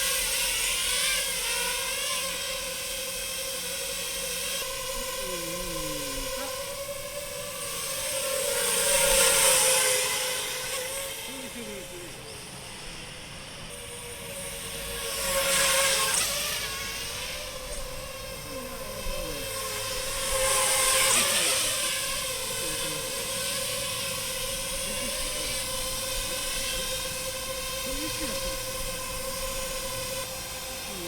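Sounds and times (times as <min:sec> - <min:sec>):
drone propellers whining: 0:00.0 - 0:31.0.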